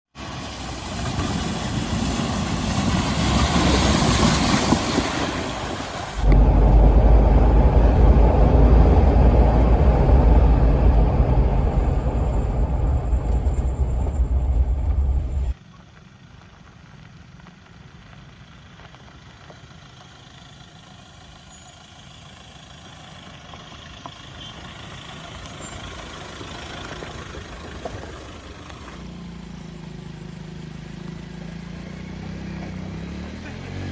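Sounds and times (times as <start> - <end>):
loud rushing noise: 1.4 - 15.5
heavy engine drone: 6.0 - 15.6.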